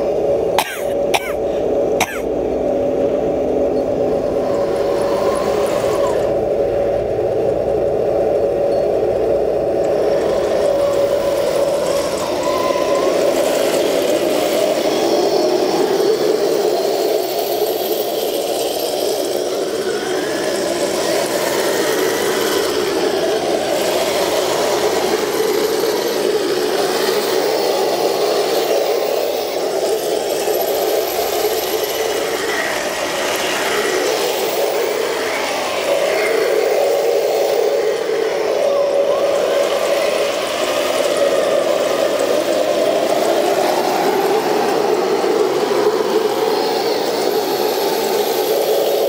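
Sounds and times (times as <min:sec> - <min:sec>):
toy tank motor running: 0:04.3 - 0:06.6, 0:09.2 - 0:49.0.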